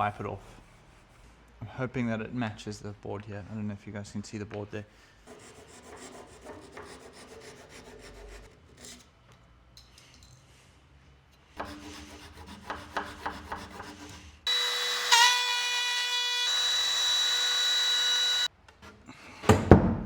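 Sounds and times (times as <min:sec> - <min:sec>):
power tool whining: 0:14.5 - 0:18.5.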